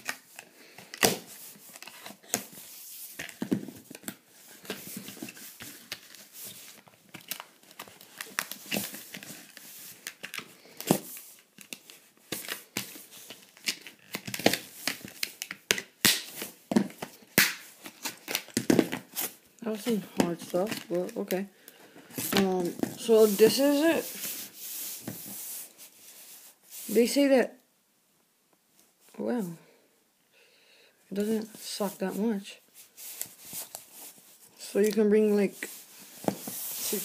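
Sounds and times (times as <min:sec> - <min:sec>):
plastic packaging crinkling and cracking: 0:03.2 - 0:21.5.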